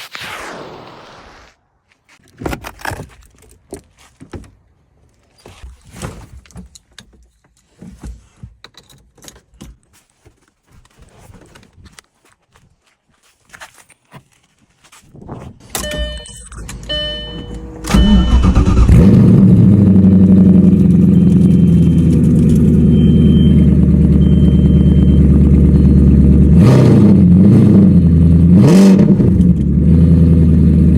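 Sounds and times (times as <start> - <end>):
short beeps: 15.8 - 18.8, 20.7 - 26.2
car engine starting and idling: 15.8 - 30.9
engine throttle blips: 15.8 - 30.9.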